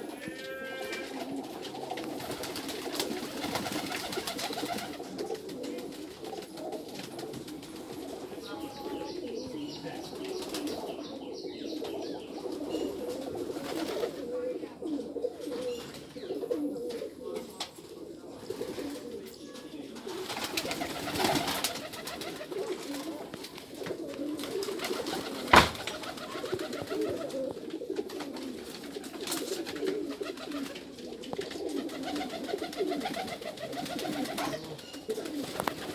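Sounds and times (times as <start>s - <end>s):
pigeons cooing: 0.0s - 35.9s.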